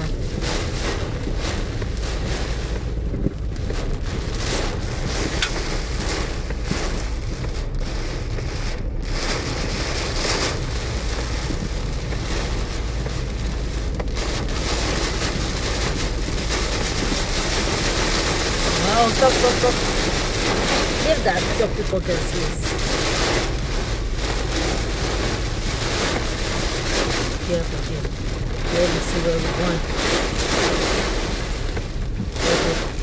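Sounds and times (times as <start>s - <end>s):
heavy rain and wind on a car: 0.0s - 33.0s
road noise: 0.0s - 33.0s.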